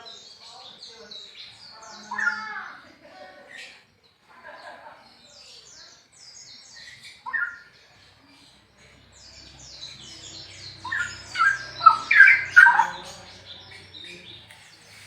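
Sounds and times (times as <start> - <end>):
bird singing loud whistled notes: 5.3 - 8.0, 9.1 - 15.0.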